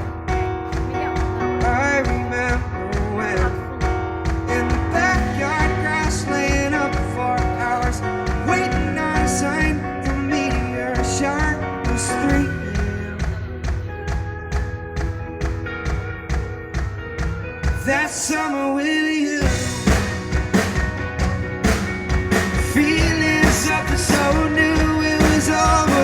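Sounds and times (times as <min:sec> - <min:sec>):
live band playing pop song: 0:00.0 - 0:26.0
steady kick drum beat: 0:19.4 - 0:26.0.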